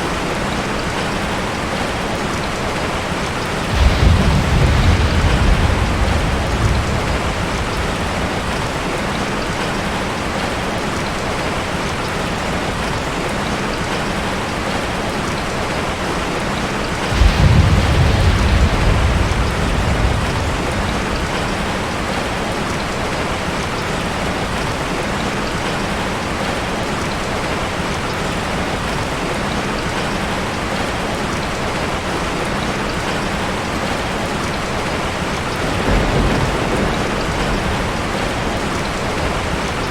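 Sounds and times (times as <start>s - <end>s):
heavy rain falling: 0.0s - 39.9s
thunder rumbling: 3.2s - 10.4s, 16.9s - 23.6s, 35.5s - 39.9s.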